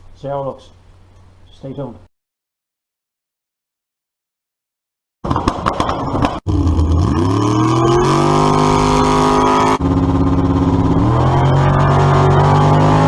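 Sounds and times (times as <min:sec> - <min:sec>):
vehicle engine revving: 0:05.3 - 0:13.0.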